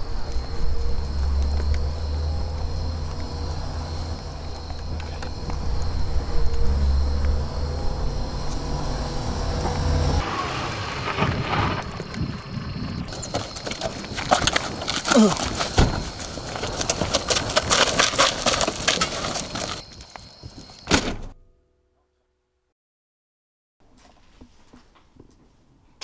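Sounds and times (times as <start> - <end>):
car engine running low: 0.0 - 19.8.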